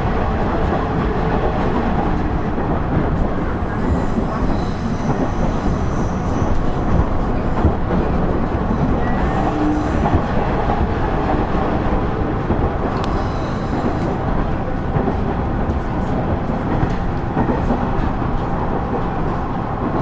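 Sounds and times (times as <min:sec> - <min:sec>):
railcar engine rumbling: 0:00.0 - 0:20.0
train wheels on rails: 0:00.0 - 0:20.0
faint clicks: 0:12.9 - 0:14.3.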